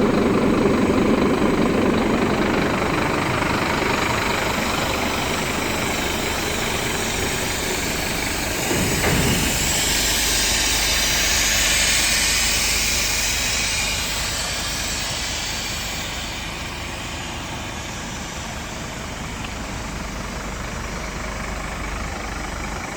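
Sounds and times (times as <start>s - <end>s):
diesel truck engine idling: 0.0s - 22.9s
loud air hiss: 5.3s - 19.2s.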